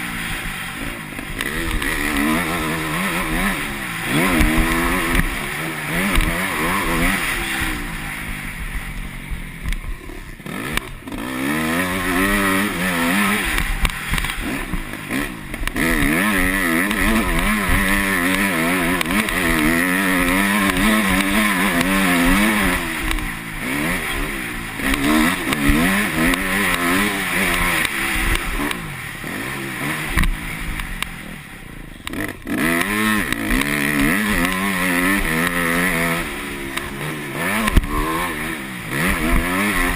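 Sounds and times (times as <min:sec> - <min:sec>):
motocross engine revving: 0:00.0 - 0:39.9.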